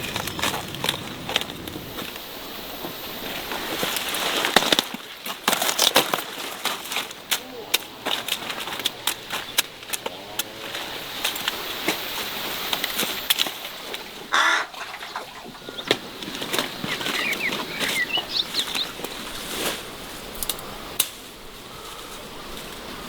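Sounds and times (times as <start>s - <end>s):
noise burst: 0.0s - 4.6s
birds chirping: 0.0s - 5.2s, 7.0s - 21.0s.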